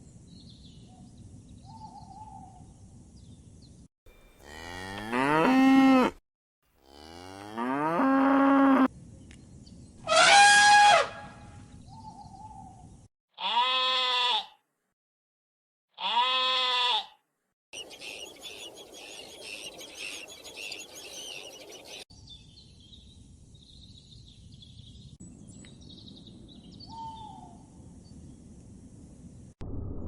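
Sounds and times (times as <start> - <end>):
animal bleat: 13.4 - 14.6, 16.0 - 17.2
chorus of birds chirping: 17.8 - 22.1.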